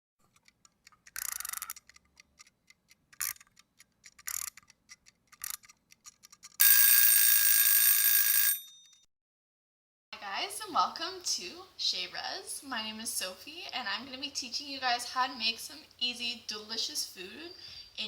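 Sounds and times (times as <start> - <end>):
alarm clock ringing: 6.6 - 8.9.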